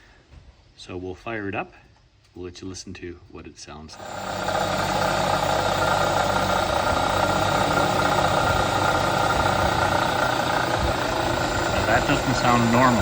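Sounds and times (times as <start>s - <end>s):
engine idling: 4.0s - 13.0s.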